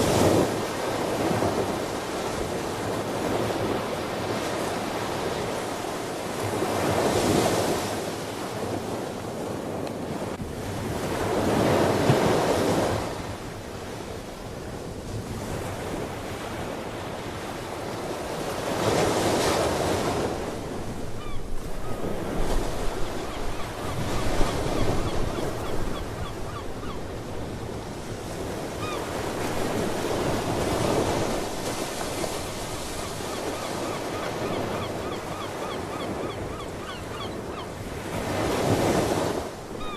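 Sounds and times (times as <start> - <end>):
ocean waves breaking: 0.0 - 39.9
faint seabird calls: 21.2 - 27.2, 28.7 - 29.2, 33.0 - 38.1.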